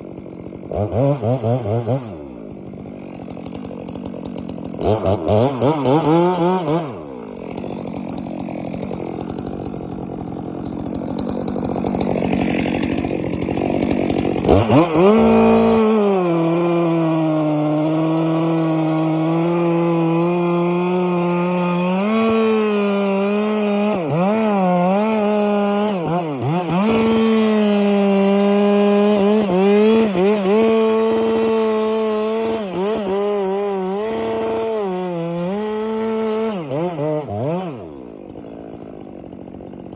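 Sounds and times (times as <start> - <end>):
chainsaw cutting through wood: 0.0 - 39.9.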